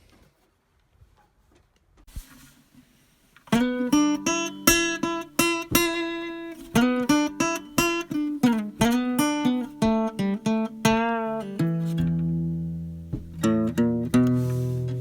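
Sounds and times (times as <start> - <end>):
acoustic guitar music: 3.4 - 15.0.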